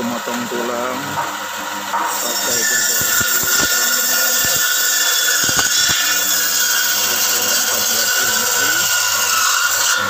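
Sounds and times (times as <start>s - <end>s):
electric saw cutting bone: 0.0s - 10.0s
sharp knocks: 2.8s - 6.8s.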